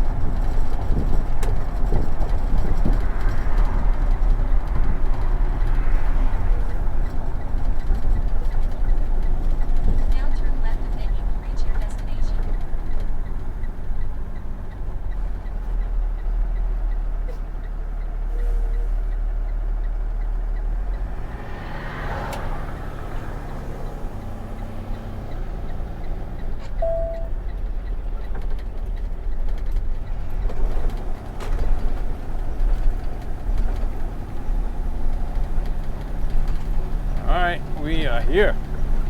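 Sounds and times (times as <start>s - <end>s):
truck engine and road rumble: 0.0s - 39.0s.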